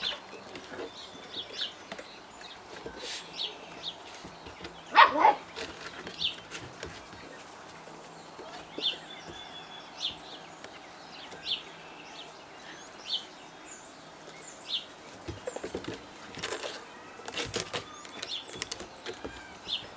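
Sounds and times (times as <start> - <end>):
bird chirping: 0.0 - 19.9
steady outdoor hiss: 0.0 - 19.9
scuffing and tapping: 2.7 - 9.5.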